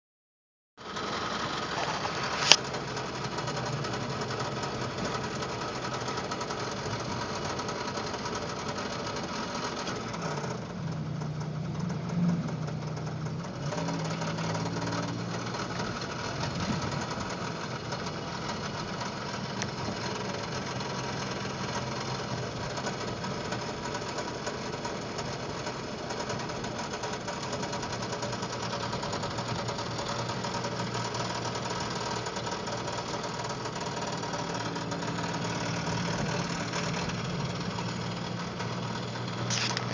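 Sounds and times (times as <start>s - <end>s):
engine running with knocking: 0.8s - 39.9s
sharp click: 39.4s - 39.9s.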